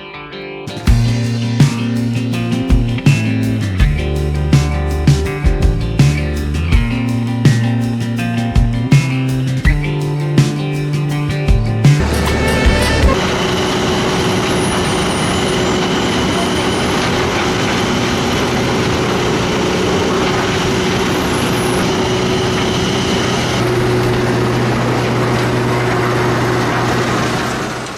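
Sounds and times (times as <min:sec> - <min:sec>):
wood chipper running: 0:12.0 - 0:27.9.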